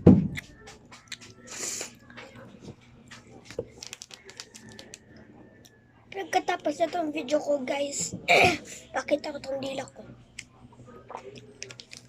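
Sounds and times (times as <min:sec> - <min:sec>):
chewing crunchy food: 0:02.8 - 0:05.7, 0:11.1 - 0:12.0.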